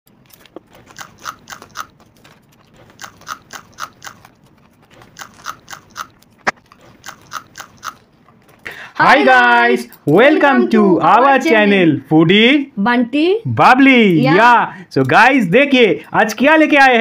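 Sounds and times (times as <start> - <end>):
crunchy chewing: 0.1 - 8.7.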